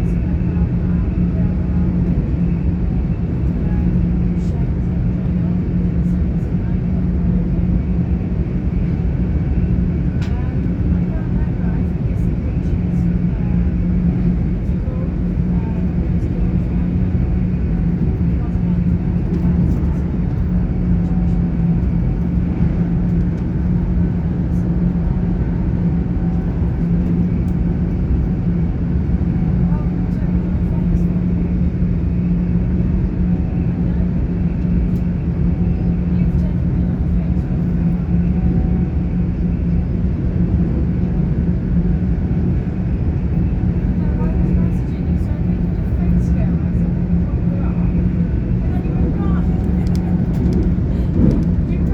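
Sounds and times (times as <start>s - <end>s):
constant hum: 0.0s - 51.9s
train wheels rumbling on track: 0.2s - 51.9s.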